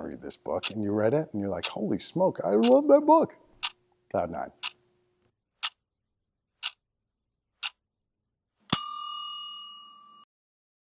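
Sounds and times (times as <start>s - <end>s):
timer ticking: 0.6s - 1.0s, 1.6s - 1.9s, 2.5s - 2.9s, 3.6s - 3.8s, 4.6s - 4.8s, 5.6s - 5.8s, 6.6s - 6.8s, 7.6s - 7.8s.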